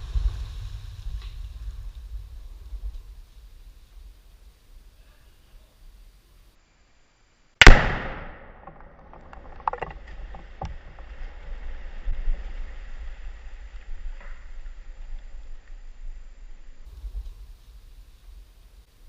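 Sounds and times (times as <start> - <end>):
explosive blast: 7.6 - 8.8.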